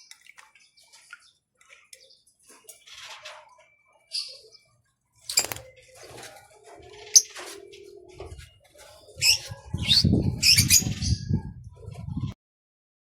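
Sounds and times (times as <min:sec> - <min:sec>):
small birds chirping: 0:00.0 - 0:12.3
wings flapping: 0:05.2 - 0:08.3.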